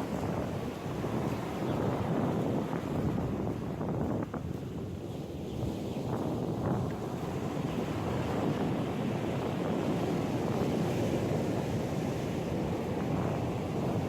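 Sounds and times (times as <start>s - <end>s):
ocean surf washing on beach: 0.0s - 14.0s
wind buffeting microphone: 0.0s - 14.0s.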